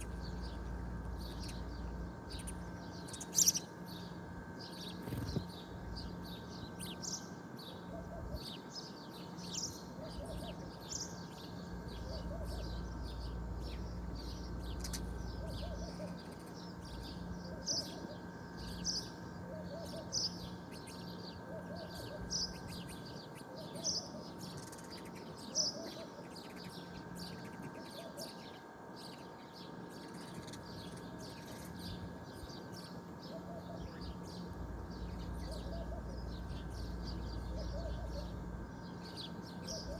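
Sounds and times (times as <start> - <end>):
faint steady hum: 0.0 - 39.9
small birds chirping: 0.0 - 39.9.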